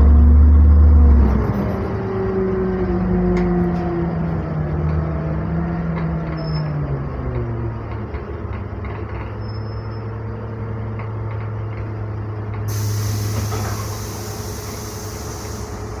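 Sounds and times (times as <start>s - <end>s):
bus engine: 0.0s - 16.0s
compressed air hissing: 12.7s - 16.0s.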